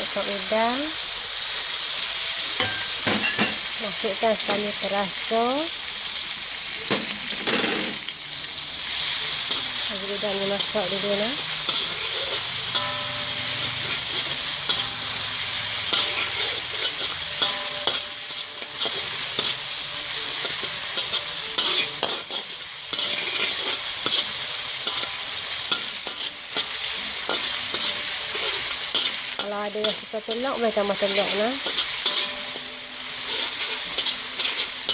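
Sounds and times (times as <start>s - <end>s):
shrimp sizzling in hot oil: 0.0s - 34.9s
spatula scraping a pan: 9.0s - 34.9s.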